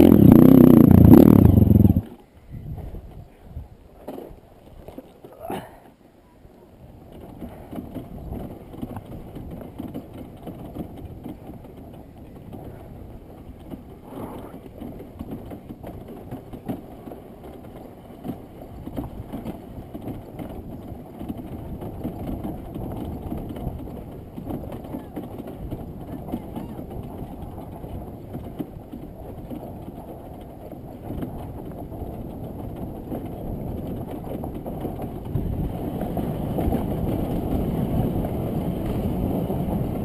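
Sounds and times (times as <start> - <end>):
dirt bike engine revving: 0.0 - 2.0.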